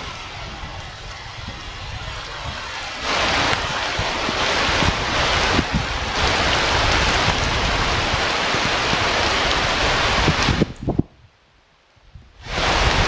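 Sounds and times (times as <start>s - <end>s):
wind buffeting microphone: 0.0s - 11.4s, 12.0s - 13.0s.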